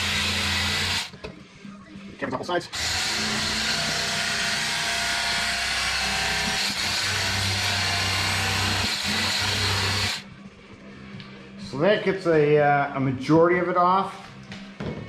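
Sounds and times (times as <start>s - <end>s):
electric knife motor running: 0.0s - 1.1s, 2.7s - 10.2s.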